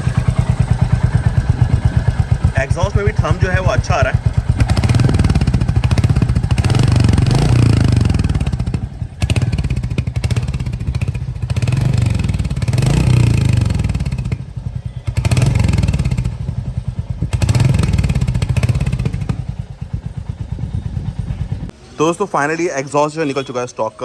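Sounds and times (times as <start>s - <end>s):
motorcycle engine revving: 0.0s - 21.8s.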